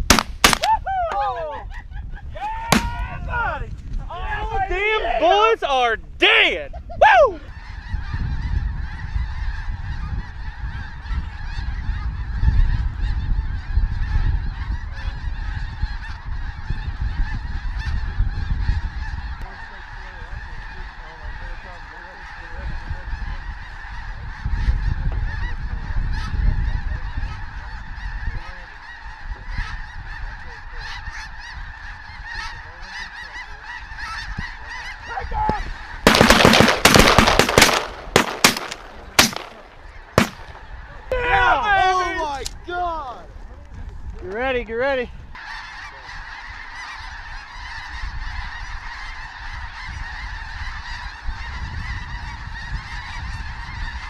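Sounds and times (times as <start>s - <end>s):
loud sharp bangs: 0.0s - 0.7s, 2.7s - 3.0s, 35.5s - 40.7s
geese calling: 0.0s - 54.0s
wind rumbling on microphone: 0.0s - 54.0s.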